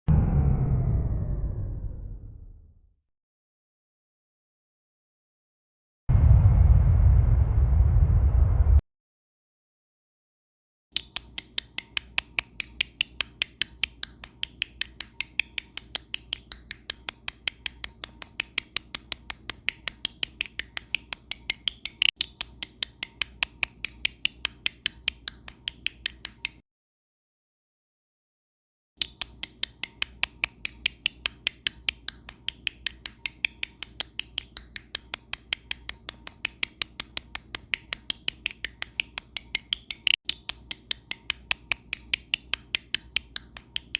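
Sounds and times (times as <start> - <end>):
faint low hum: 0.1 - 2.9, 6.1 - 8.8.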